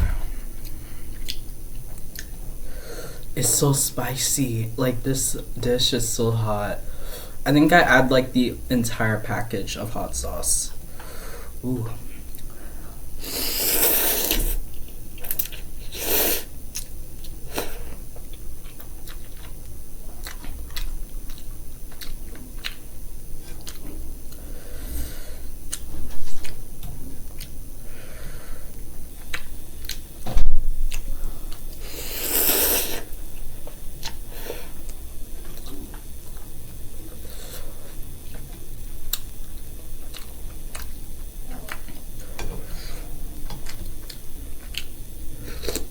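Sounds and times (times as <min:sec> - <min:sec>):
short thump: 0:00.0 - 0:00.5
chewing and crunching food: 0:14.7 - 0:15.9, 0:16.7 - 0:25.1, 0:25.7 - 0:27.6, 0:28.7 - 0:31.8, 0:33.1 - 0:45.9.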